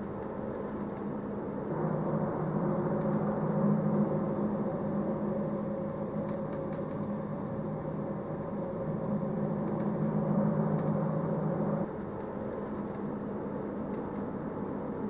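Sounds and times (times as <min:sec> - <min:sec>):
train rumbling: 0:00.0 - 0:13.8
low electric hum: 0:00.0 - 0:15.0.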